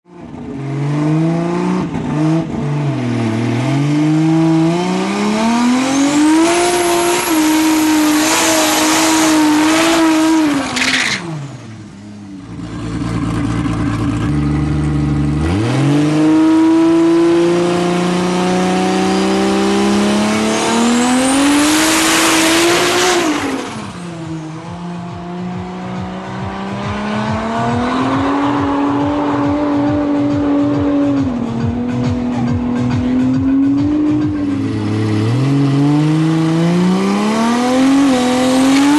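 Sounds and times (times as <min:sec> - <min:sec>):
race car engine revving: 0:00.2 - 0:11.8, 0:12.4 - 0:38.9.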